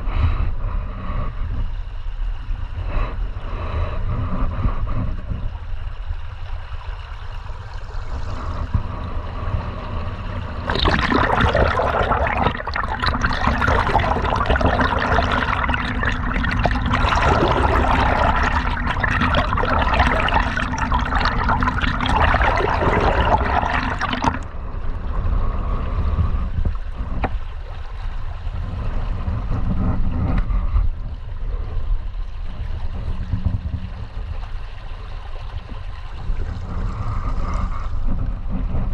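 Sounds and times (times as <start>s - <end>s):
steady low rumble: 0.0s - 38.9s
river water gurgling: 10.5s - 24.5s
loud water rushing: 10.7s - 24.5s.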